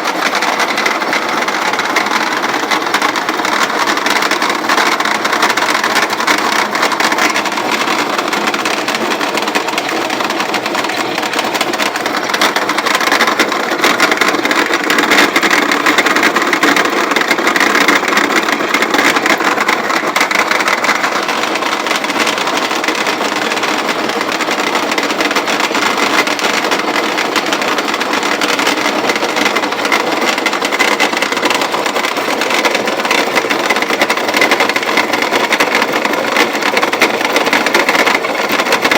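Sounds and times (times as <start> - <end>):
roller mill grinding grain: 0.0 - 38.9.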